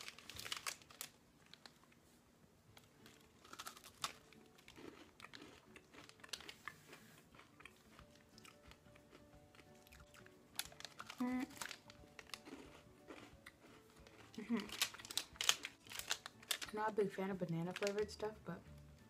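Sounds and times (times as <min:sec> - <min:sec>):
crunching and chewing cracker: 0:00.0 - 0:02.0, 0:02.7 - 0:16.8
wrapper crinkling: 0:00.0 - 0:02.0, 0:02.8 - 0:06.8, 0:09.6 - 0:13.2, 0:14.0 - 0:18.4.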